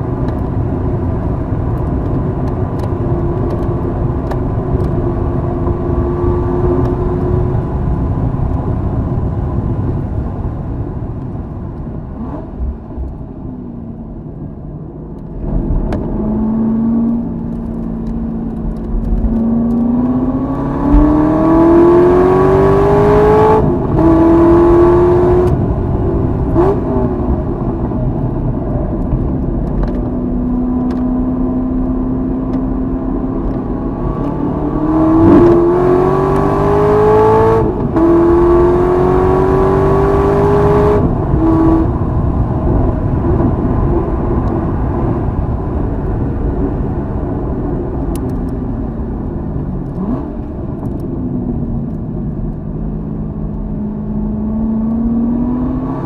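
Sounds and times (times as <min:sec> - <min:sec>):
sports car engine revving: 0:15.4 - 0:27.4, 0:30.1 - 0:42.0, 0:52.8 - 0:56.0.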